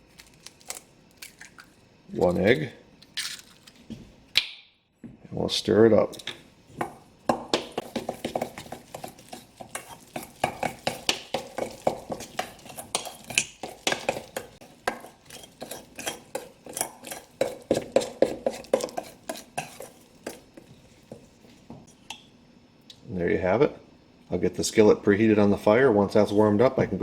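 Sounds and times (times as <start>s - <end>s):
utensil stirring batter in bowl: 6.2s - 22.2s.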